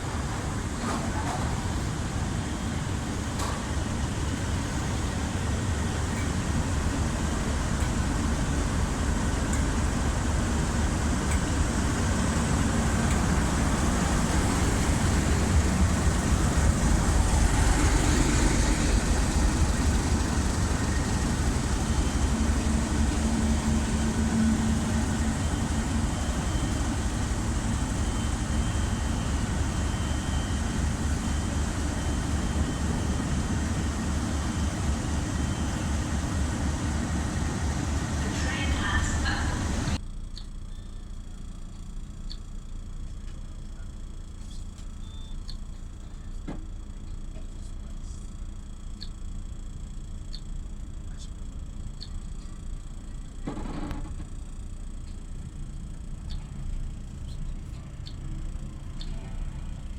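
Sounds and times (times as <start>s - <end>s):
train rumbling: 0.0s - 40.0s, 55.8s - 59.9s.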